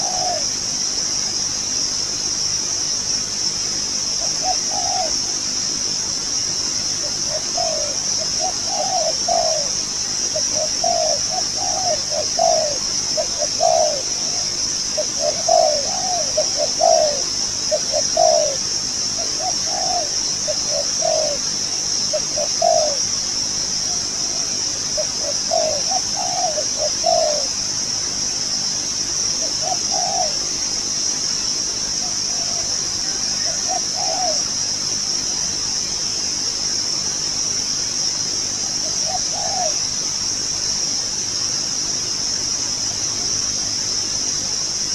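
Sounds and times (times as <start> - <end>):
dove cooing: 0.0 - 0.6, 4.2 - 5.4, 7.0 - 23.2, 23.8 - 27.7, 29.3 - 30.8, 32.0 - 34.6, 38.8 - 39.9
high insect buzz: 0.0 - 44.9.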